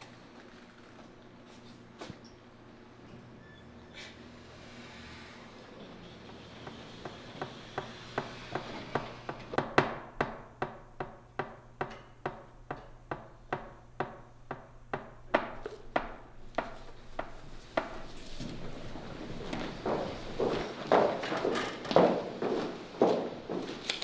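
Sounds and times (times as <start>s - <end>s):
footsteps on hard floor: 16.6s - 24.0s.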